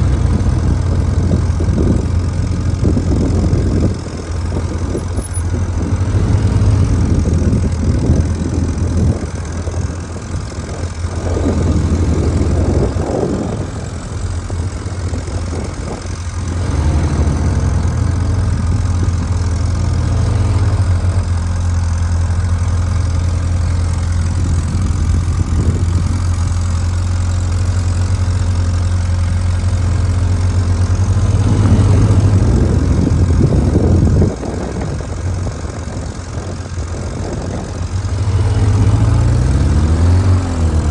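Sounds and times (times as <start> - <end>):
motorcycle engine at low revs: 0.0 - 40.9.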